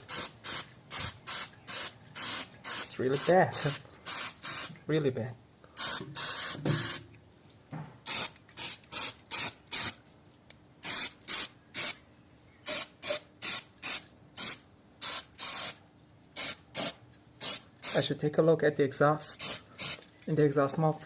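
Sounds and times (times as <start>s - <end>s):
aerosol spray bursts: 0.0s - 4.7s, 5.8s - 7.0s, 12.7s - 15.8s.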